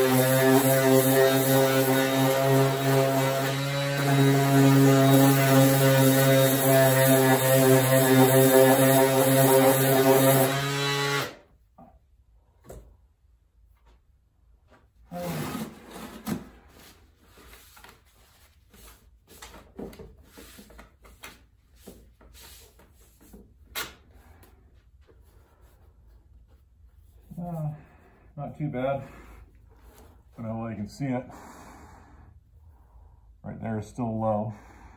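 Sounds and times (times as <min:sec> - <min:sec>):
orbital sander humming: 0:00.0 - 0:11.4.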